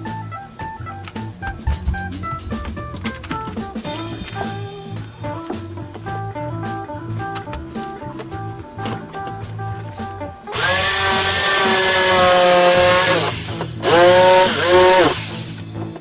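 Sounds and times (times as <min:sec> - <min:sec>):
soft guitar music: 0:00.0 - 0:16.0
power tool motor whine: 0:10.5 - 0:15.6.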